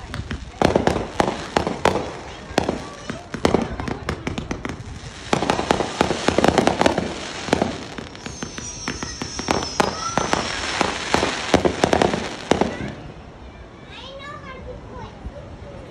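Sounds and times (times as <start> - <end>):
fireworks bangs and crackling: 0.0 - 13.4
high firework whistle: 5.3 - 13.1.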